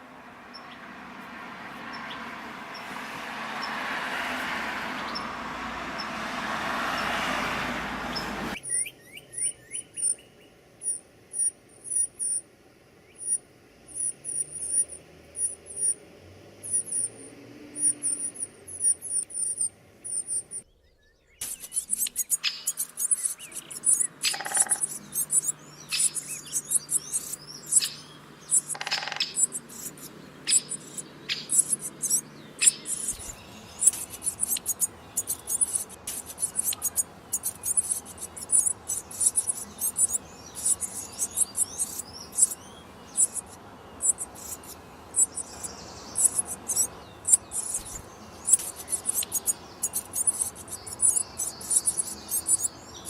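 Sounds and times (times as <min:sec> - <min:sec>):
nestlings cheeping: 0:08.5 - 0:12.4, 0:13.1 - 0:16.0, 0:16.6 - 0:20.6, 0:21.4 - 0:53.0
sharp clicks: 0:21.4 - 0:25.4, 0:28.6 - 0:42.6.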